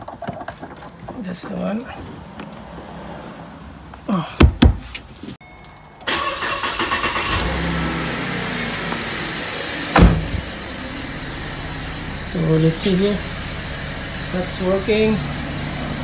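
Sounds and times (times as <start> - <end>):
car engine starting and idling: 5.9 - 16.0.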